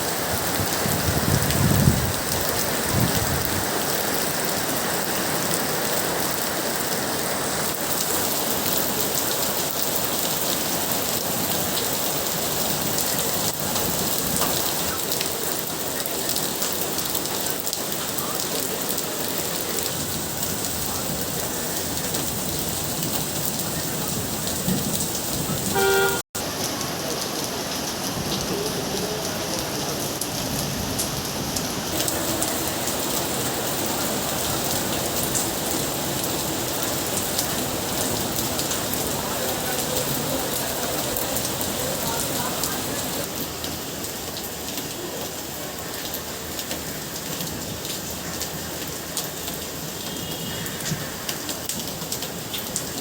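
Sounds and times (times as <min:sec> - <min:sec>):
heavy rain splashing: 0:00.0 - 0:53.0
short tooting tone: 0:25.7 - 0:26.2.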